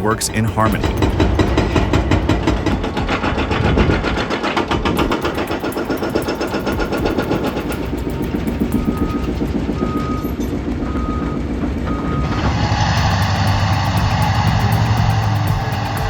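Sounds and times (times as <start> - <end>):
diesel engine running: 0.0 - 16.0
reversing alarm beeps: 5.0 - 12.4.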